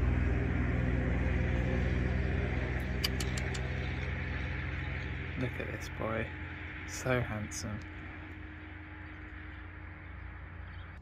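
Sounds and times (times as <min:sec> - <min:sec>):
car engine idling: 0:00.0 - 0:11.0
light clicks: 0:03.0 - 0:04.1.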